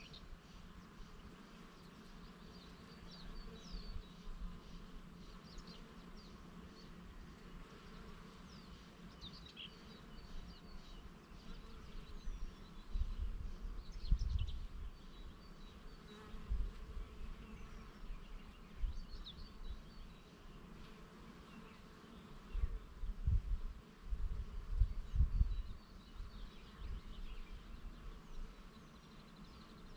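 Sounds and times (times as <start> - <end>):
small birds chirping: 0.0 - 23.6, 24.4 - 29.9
wind gusts on microphone: 12.4 - 15.3, 22.5 - 27.7.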